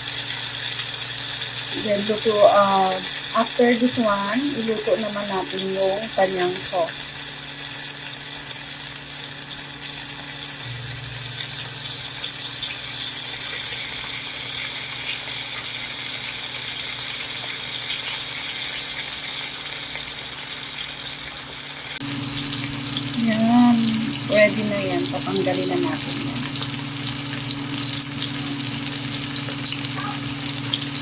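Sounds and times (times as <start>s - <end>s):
chicken sizzling in oil: 0.0s - 31.0s
low steady hum: 22.0s - 31.0s.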